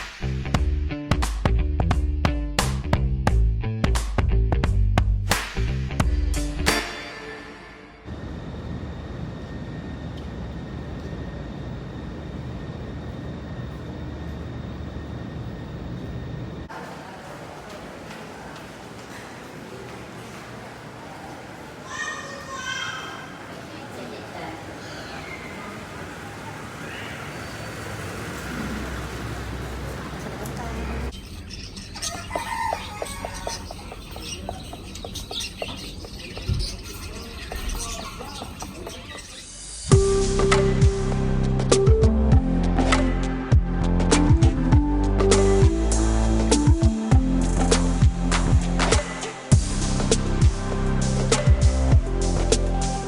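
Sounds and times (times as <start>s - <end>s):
faint high whine: 7.8s - 16.8s
steady low rumble: 8.1s - 16.7s
small birds chirping: 30.1s - 39.6s
chickens clucking: 31.9s - 39.1s.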